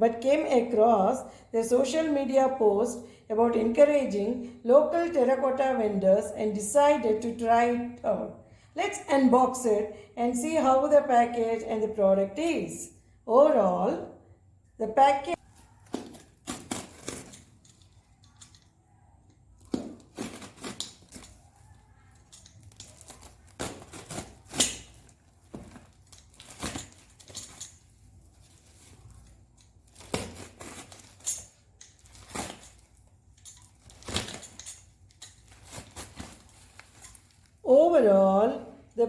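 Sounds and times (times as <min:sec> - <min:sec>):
packaging rustling and tearing: 0:15.4 - 0:18.2, 0:19.6 - 0:37.6
sharp handling noises: 0:15.4 - 0:37.6.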